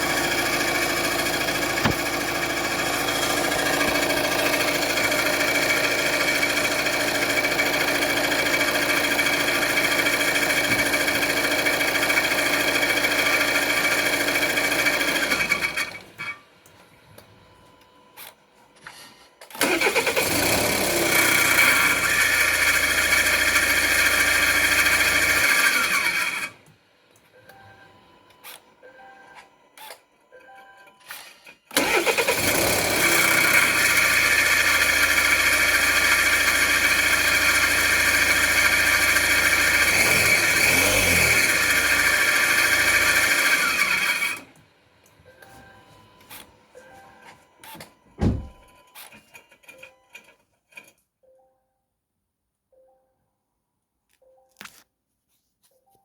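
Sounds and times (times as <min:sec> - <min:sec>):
car engine running: 0:00.0 - 0:13.0, 0:32.3 - 0:44.2
engine starting: 0:19.5 - 0:26.6, 0:31.1 - 0:36.8, 0:38.6 - 0:44.5.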